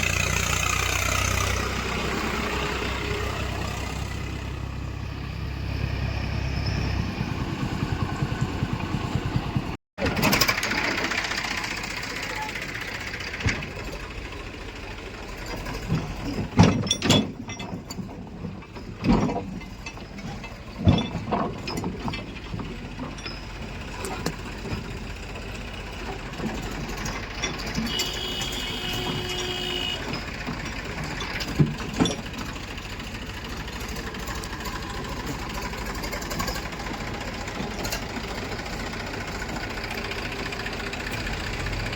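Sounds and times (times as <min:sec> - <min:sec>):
heavy diesel machinery running: 0:00.0 - 0:41.9
loud clanks and thuds: 0:15.5 - 0:25.0, 0:26.3 - 0:32.9.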